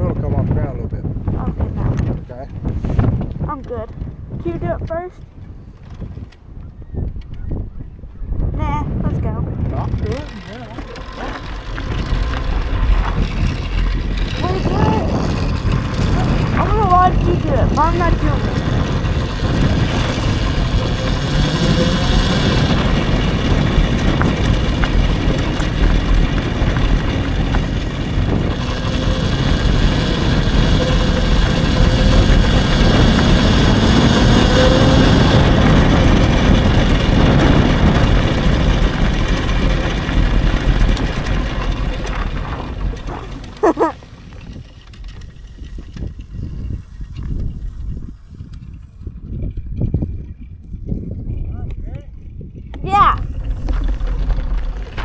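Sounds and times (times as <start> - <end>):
wind and tyre noise: 0.0 - 55.0
electric motor whine: 9.1 - 48.7, 52.7 - 55.0.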